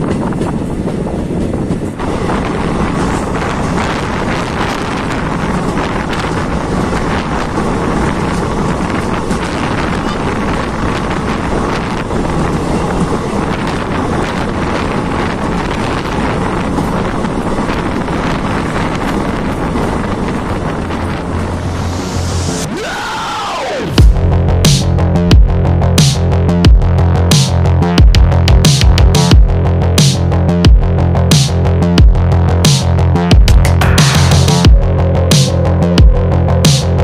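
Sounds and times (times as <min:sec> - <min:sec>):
train wheels on track: 0:00.0 - 0:37.0
wind buffeting microphone: 0:00.0 - 0:37.0.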